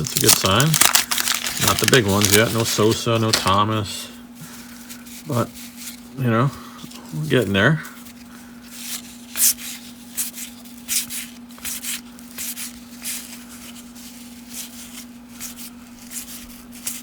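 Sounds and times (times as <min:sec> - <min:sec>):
cards sliding with papery swish: 0:08.7 - 0:17.0.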